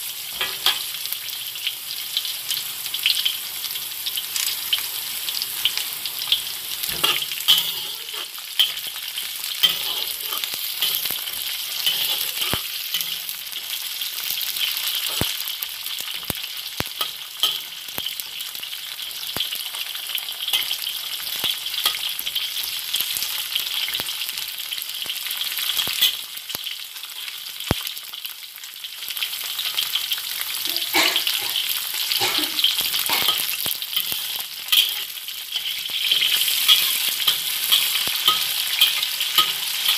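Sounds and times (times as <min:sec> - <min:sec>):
garlic sizzling in oil: 0:00.0 - 0:39.9
metal ladle scraping wok: 0:06.9 - 0:09.0, 0:09.6 - 0:13.3.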